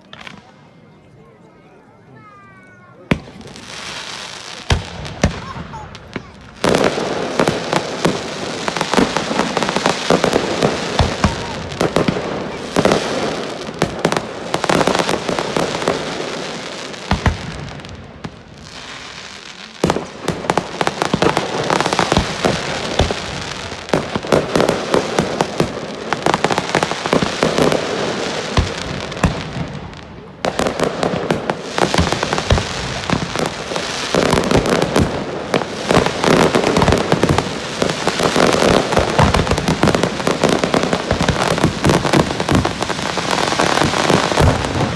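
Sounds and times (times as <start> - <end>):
fireworks crackling and banging: 0.0 - 1.0, 2.8 - 44.9.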